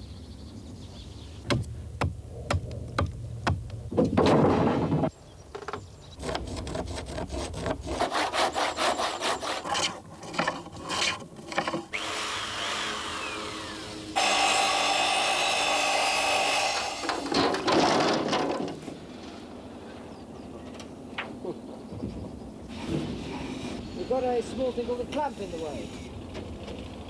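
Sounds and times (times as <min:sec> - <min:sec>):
hand saw cutting wood: 0:06.2 - 0:17.6.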